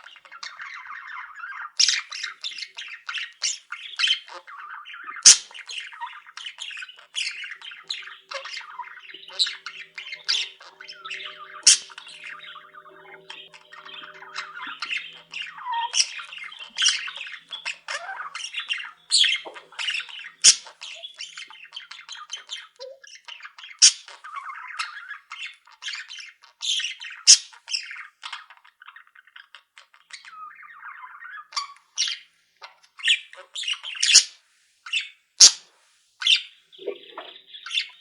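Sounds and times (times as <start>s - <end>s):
soft bird warbling: 0.0s - 21.5s, 36.3s - 38.0s
cage birds chirping and squawking: 0.0s - 38.0s.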